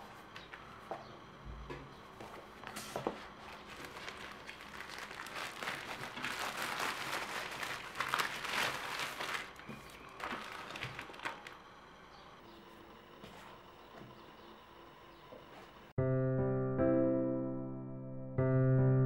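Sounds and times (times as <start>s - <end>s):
rustling and crinkling: 2.2s - 11.7s.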